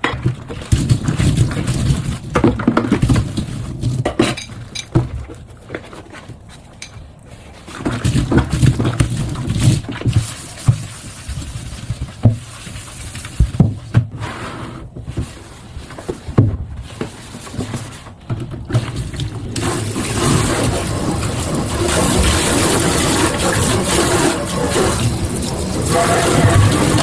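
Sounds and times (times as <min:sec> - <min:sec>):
knocks and thumps: 0:00.0 - 0:07.0, 0:07.7 - 0:14.2, 0:16.0 - 0:19.4
running water rushing: 0:18.9 - 0:27.0.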